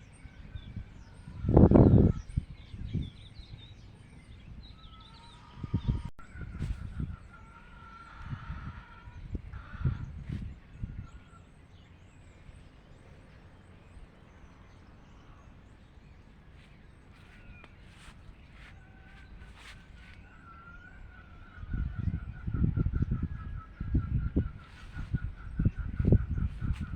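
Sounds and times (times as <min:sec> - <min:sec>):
birds chirping: 0:00.0 - 0:26.9.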